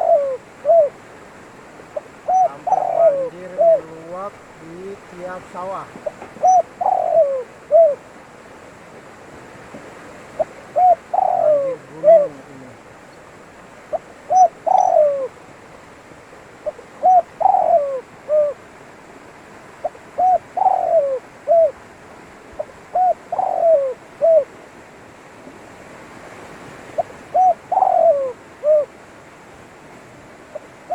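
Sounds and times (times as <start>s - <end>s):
dove cooing: 0.0s - 1.1s, 2.0s - 8.2s, 10.4s - 13.2s, 13.8s - 15.5s, 16.6s - 18.7s, 19.8s - 21.8s, 22.6s - 24.6s, 27.0s - 29.0s
faint steady hiss: 0.0s - 30.9s.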